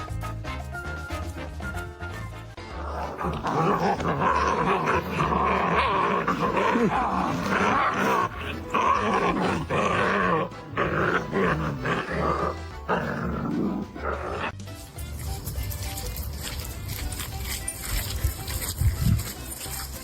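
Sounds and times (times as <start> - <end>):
dog growling: 2.7 - 14.6.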